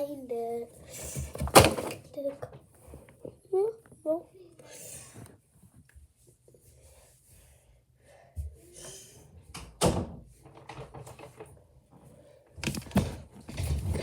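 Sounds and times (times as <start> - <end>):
objects knocking and clunking: 1.1 - 3.4, 9.5 - 12.0.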